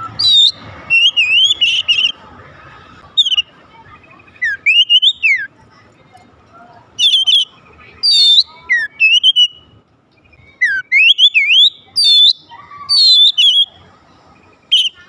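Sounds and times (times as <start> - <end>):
bird singing whistled phrases: 0.0 - 2.2, 3.2 - 3.5, 4.1 - 5.5, 7.0 - 13.8, 14.6 - 15.0.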